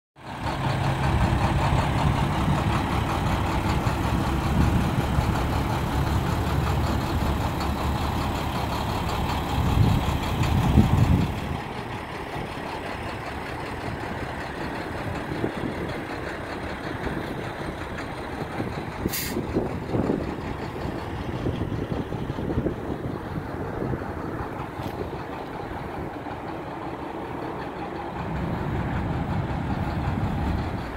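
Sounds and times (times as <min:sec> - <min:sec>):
diesel truck engine running: 0:00.2 - 0:30.9
hiss of air: 0:19.1 - 0:19.5.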